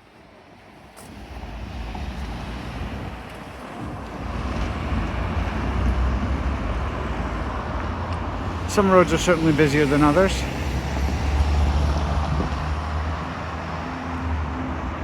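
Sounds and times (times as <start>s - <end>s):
vehicle rumble and tyre noise: 0.0s - 15.0s.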